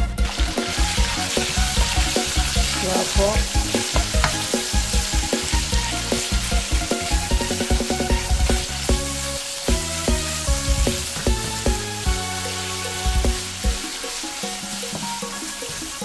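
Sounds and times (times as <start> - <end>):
meat sizzling in hot oil: 0.0 - 16.0
wooden spatula stirring: 3.8 - 4.7.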